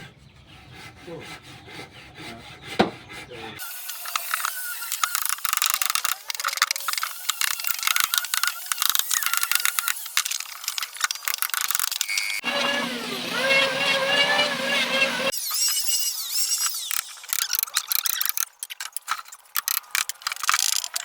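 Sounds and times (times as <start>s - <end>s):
tool scraping on wood: 0.0s - 15.3s.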